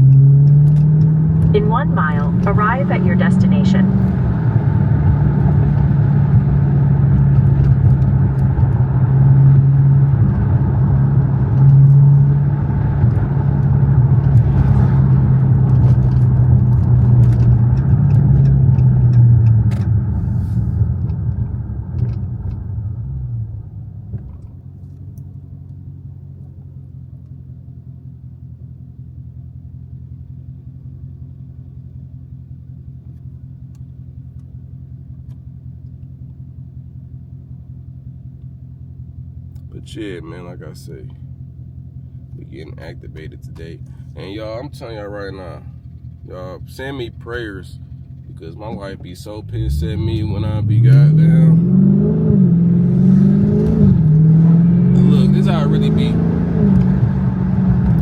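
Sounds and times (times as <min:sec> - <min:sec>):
car engine droning from inside: 0:00.0 - 0:58.0
road rumble: 0:00.0 - 0:58.0.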